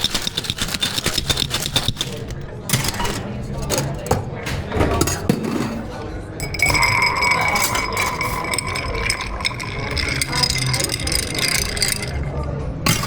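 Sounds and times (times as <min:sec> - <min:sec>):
glassware clinking: 0:02.0 - 0:12.3
steady high ringing tone: 0:06.4 - 0:12.3.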